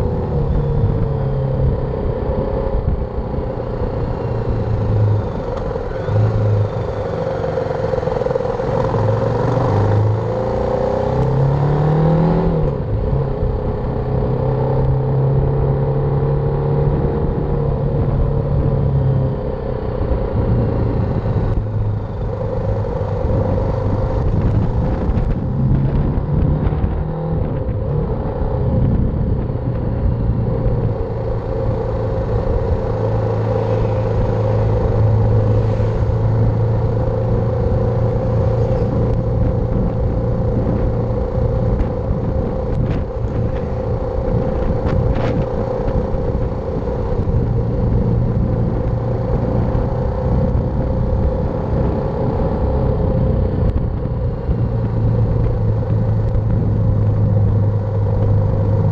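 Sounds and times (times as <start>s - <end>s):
motorcycle engine revving: 0.0s - 58.9s
riding noise: 19.3s - 58.9s.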